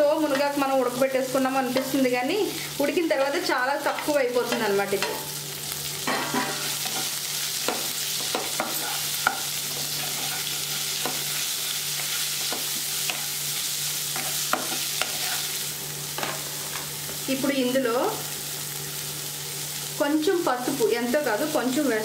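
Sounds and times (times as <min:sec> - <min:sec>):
leaves sizzling in hot oil: 0:00.0 - 0:22.0
wooden spatula scraping pan: 0:08.2 - 0:13.3, 0:14.2 - 0:15.5.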